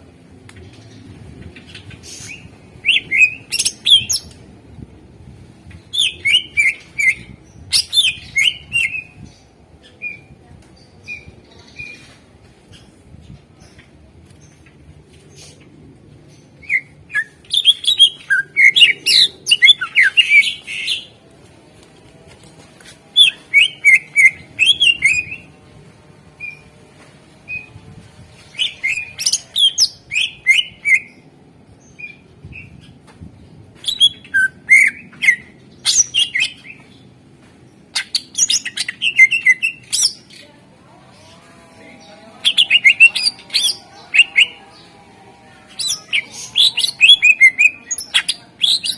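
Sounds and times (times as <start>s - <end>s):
bird singing chirps and whistles: 2.2s - 4.3s, 5.9s - 9.1s, 16.6s - 21.0s, 23.2s - 25.4s, 28.6s - 31.1s, 33.8s - 36.8s, 38.0s - 40.2s, 45.8s - 48.9s.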